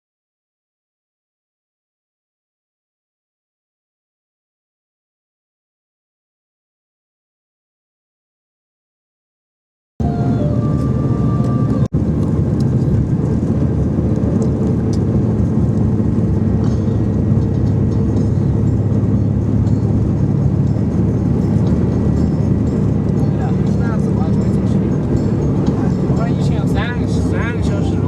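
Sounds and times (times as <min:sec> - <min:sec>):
vehicle rumble from inside: 0:10.0 - 0:28.0.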